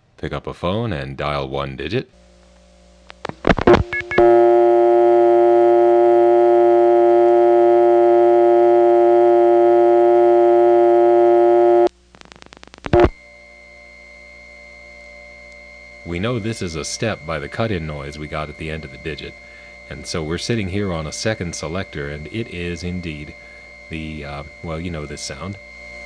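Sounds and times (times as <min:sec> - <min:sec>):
buzzy dial tone: 0:02.2 - 0:26.0
faint steady line tone: 0:02.2 - 0:26.0
dial pulse clicks: 0:02.4 - 0:16.4.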